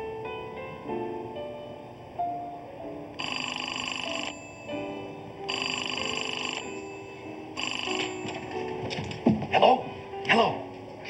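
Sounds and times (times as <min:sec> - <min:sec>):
background music: 0:00.0 - 0:11.0
payphone ringing: 0:03.2 - 0:09.0.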